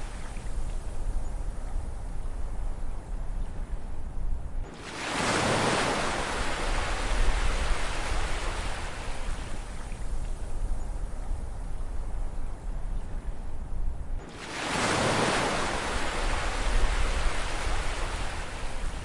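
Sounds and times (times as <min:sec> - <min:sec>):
low rumble of the sea: 0:00.0 - 0:19.0
ocean waves breaking: 0:04.7 - 0:09.8, 0:14.2 - 0:19.0.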